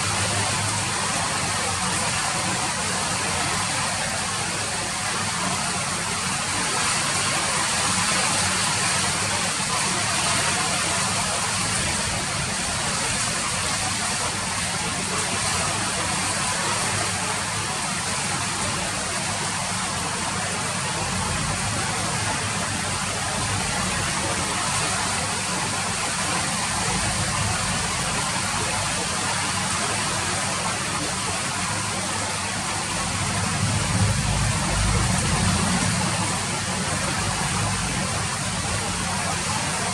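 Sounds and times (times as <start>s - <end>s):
rain hissing: 7.9s - 39.9s
low rumble: 33.1s - 38.8s.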